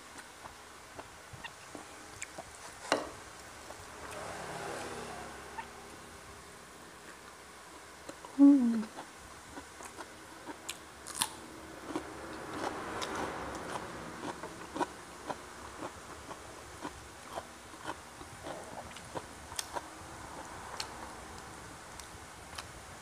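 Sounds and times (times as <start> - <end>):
chewing with mouth clicks: 8.9 - 21.0.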